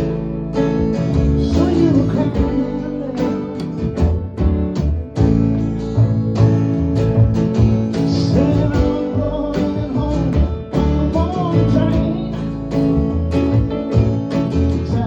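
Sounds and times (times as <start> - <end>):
acoustic guitar blues: 0.0 - 15.0.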